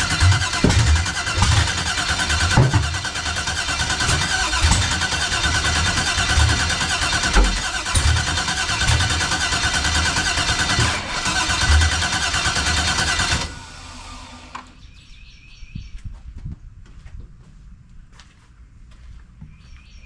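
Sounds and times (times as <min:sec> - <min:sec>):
engine cranking on starter: 0:00.0 - 0:14.8.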